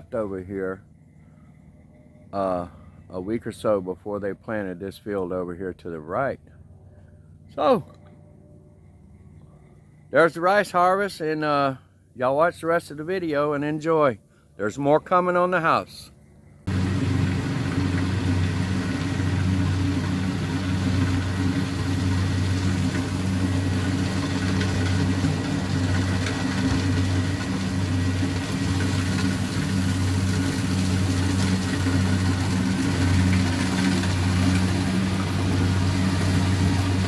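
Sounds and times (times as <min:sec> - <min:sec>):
combine harvester engine running: 0:14.6 - 0:37.0.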